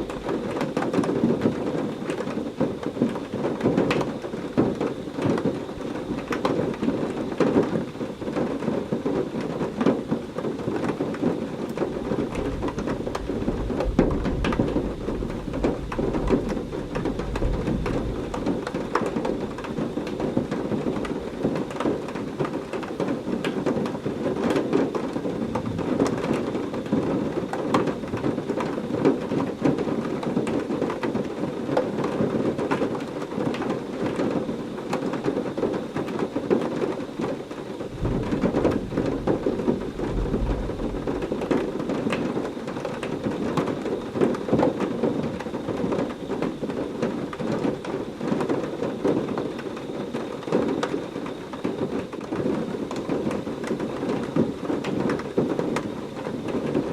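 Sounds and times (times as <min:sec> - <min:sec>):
low rumble of thunder: 0:00.0 - 0:31.0, 0:37.7 - 0:49.8
heavy rain pouring: 0:00.0 - 0:56.9.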